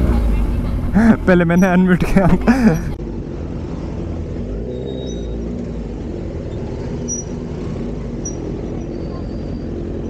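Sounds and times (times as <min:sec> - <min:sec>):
motorcycle engine running: 0:00.0 - 0:04.6.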